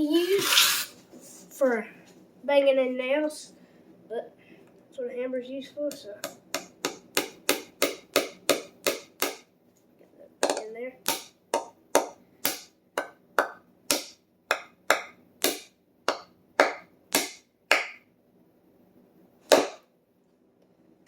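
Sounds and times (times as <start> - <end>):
hammer driving nail into wood: 6.5 - 9.5, 11.1 - 18.0, 19.5 - 19.9.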